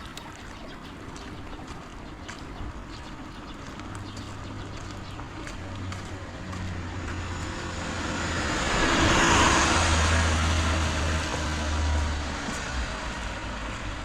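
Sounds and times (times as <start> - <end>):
tyres hissing on wet road: 7.2 - 13.7.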